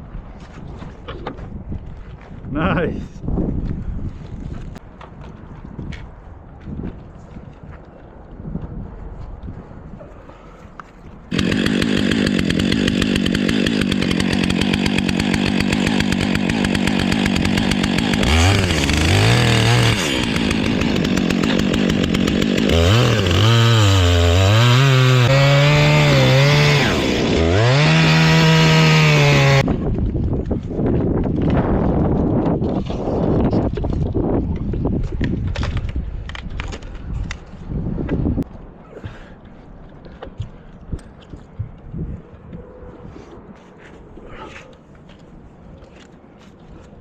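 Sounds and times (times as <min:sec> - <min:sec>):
chainsaw cutting wood: 0:11.3 - 0:29.7.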